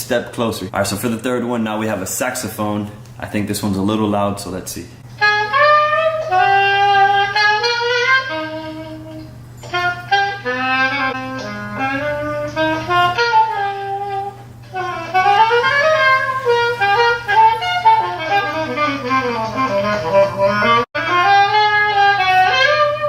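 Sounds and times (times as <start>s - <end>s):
saxophone melody: 5.0s - 23.0s.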